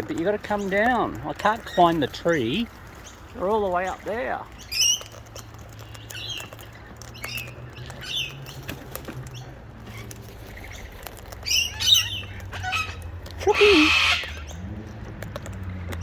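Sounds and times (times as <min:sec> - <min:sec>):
cockatoos chirping: 0:00.0 - 0:15.0.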